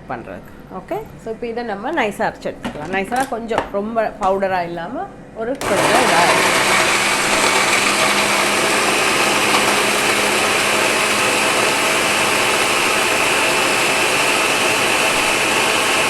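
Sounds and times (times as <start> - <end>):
electric blender running: 5.6 - 16.0.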